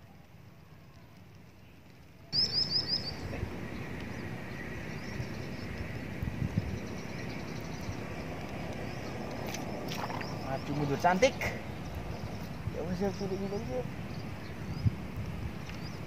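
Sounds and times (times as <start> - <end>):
small bird chirping: 2.3 - 5.8, 6.5 - 15.0.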